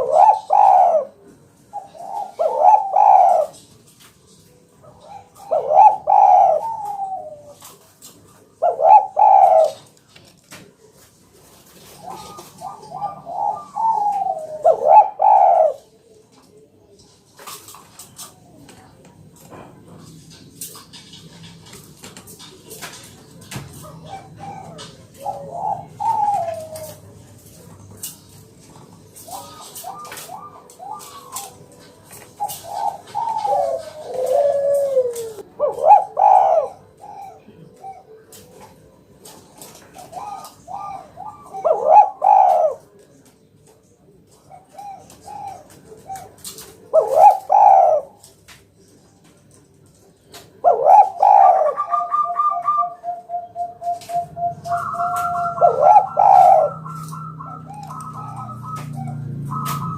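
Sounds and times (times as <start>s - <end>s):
dove cooing: 0.0s - 43.4s, 44.0s - 48.9s, 50.0s - 59.9s.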